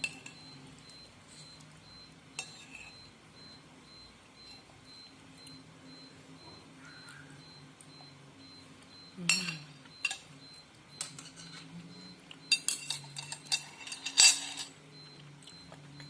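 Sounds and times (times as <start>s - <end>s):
cutlery clinking against bowl: 0.0s - 0.4s, 2.4s - 3.0s, 9.3s - 10.3s, 11.0s - 11.7s, 12.4s - 14.8s.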